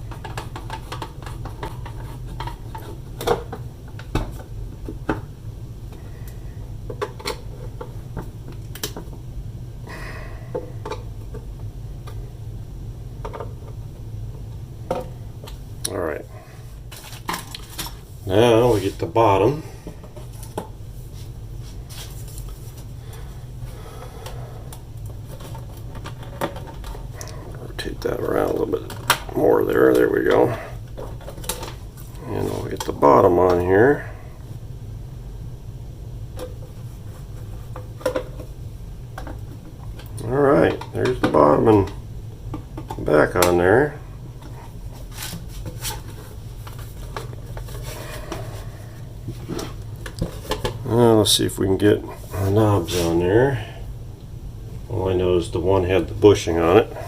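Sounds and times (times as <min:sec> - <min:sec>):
clicks and knocks handling radio parts: 0:00.0 - 0:05.3, 0:06.9 - 0:09.2, 0:13.2 - 0:13.8, 0:16.9 - 0:18.0, 0:24.2 - 0:27.4, 0:28.4 - 0:33.6, 0:36.3 - 0:38.5, 0:39.2 - 0:43.6, 0:49.3 - 0:50.8
steady low hum: 0:00.0 - 0:57.0
faint clicks and scrapes: 0:00.1 - 0:03.4.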